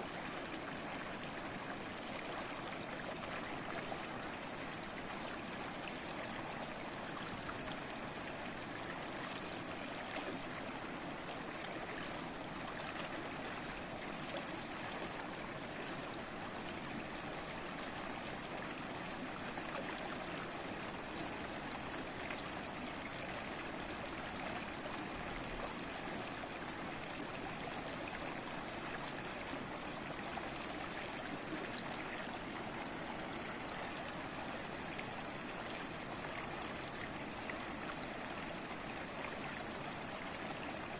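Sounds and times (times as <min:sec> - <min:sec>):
stream water flowing: 0:00.0 - 0:40.9.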